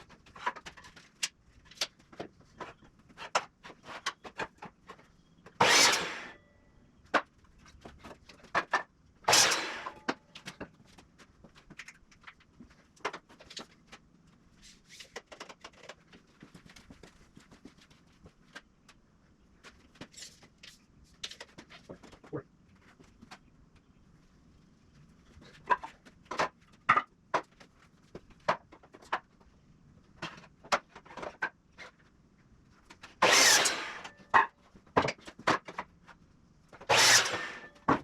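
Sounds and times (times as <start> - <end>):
clicks and knocks of hand work: 7.0 - 19.0.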